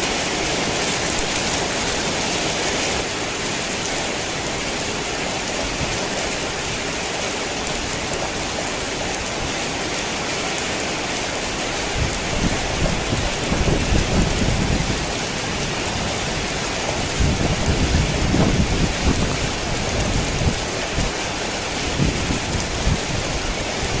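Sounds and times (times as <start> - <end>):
heavy rain: 0.0 - 24.0
thunder rumbling: 11.9 - 21.2.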